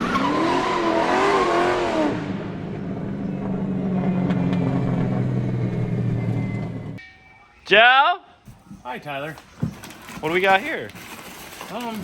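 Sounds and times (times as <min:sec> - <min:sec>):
car tires squealing: 0:00.0 - 0:02.2
car engine idling: 0:02.5 - 0:07.0.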